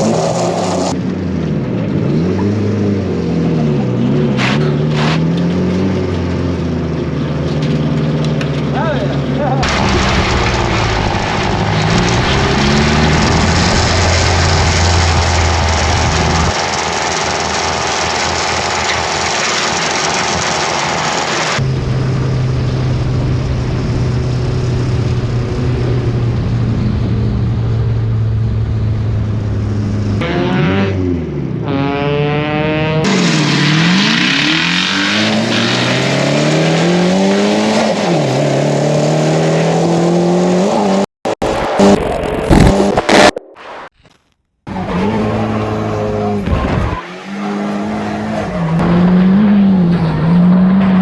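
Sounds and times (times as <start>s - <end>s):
tire squeal: 0.0s - 1.0s, 9.7s - 21.6s, 33.1s - 38.3s, 44.7s - 51.0s
car engine revving: 0.0s - 43.9s, 44.7s - 51.0s.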